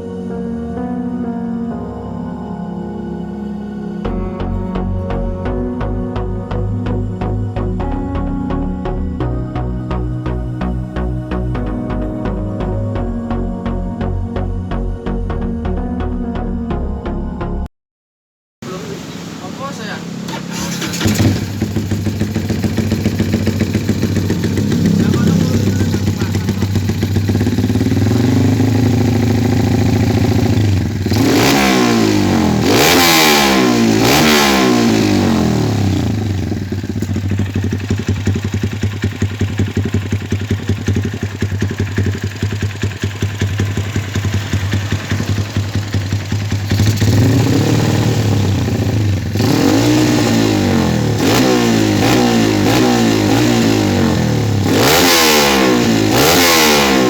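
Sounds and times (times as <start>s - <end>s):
motorcycle engine idling and revving: 18.6s - 57.0s.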